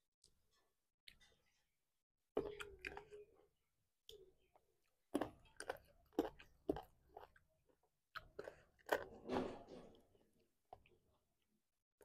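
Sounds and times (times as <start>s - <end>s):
chewing and wet mouth smacks: 2.4s - 3.2s, 5.1s - 9.2s.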